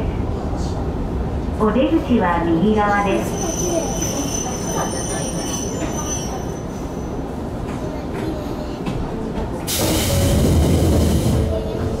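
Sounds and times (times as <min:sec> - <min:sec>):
electric train humming: 0:09.7 - 0:12.0.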